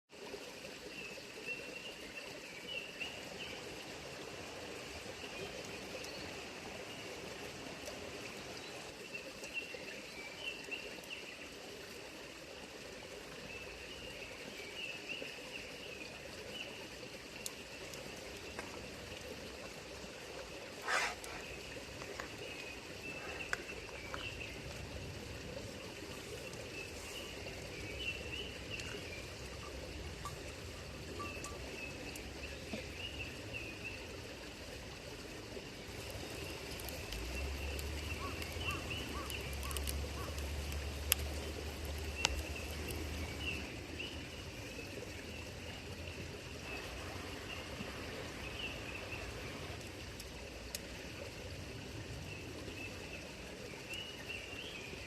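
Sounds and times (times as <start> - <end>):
stream running: 0.1 - 55.0
small birds chirping: 20.7 - 25.1, 25.8 - 34.1, 35.8 - 45.5.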